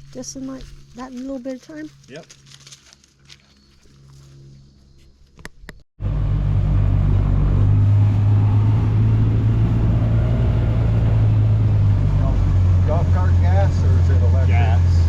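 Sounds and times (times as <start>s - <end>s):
golf cart engine drone: 6.0s - 15.0s.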